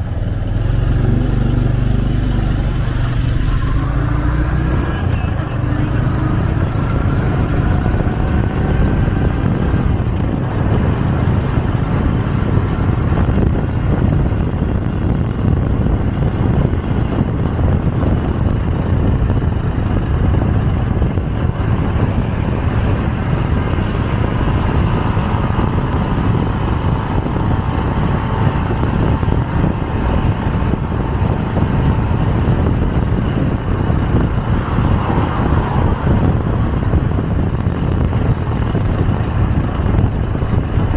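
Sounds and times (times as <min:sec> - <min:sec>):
motorcycle engine: 0:00.0 - 0:40.9
wind rushing over microphone: 0:00.0 - 0:40.9.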